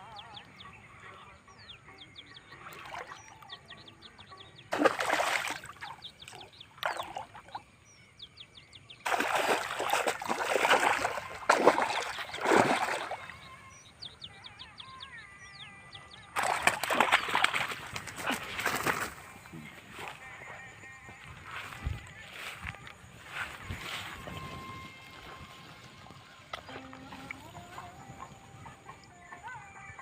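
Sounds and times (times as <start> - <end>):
birds chirping: 0.0 - 30.0
water splashing: 4.7 - 7.6, 9.0 - 13.6, 16.4 - 19.5.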